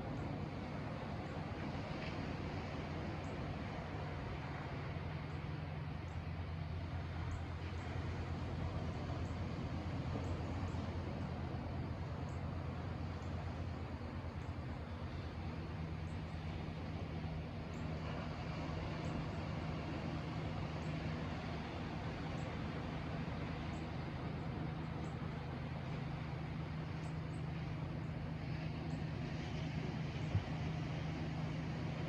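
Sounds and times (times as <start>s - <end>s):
outdoor rushing noise with low hum: 0.0s - 32.0s.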